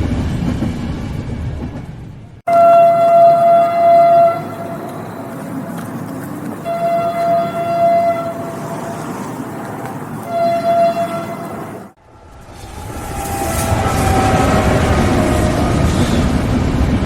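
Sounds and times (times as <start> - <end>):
train running rumble: 0.0 - 17.0
train horn blasts: 2.5 - 5.0, 6.6 - 8.6, 10.2 - 11.8.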